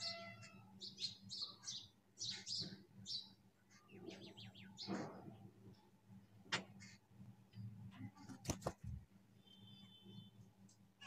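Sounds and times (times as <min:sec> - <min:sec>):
birds chirping: 0:00.0 - 0:08.4.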